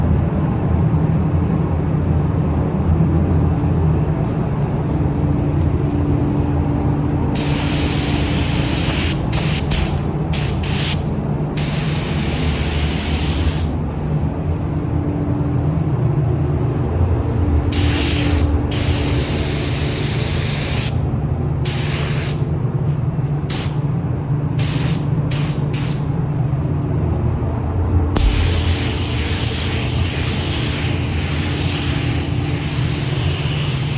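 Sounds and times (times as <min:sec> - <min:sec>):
steady low hum: 0:00.0 - 0:33.9
paint spray gun hissing: 0:07.4 - 0:13.8, 0:17.7 - 0:21.0, 0:21.7 - 0:22.4, 0:23.5 - 0:23.8, 0:24.6 - 0:26.1, 0:28.2 - 0:33.9.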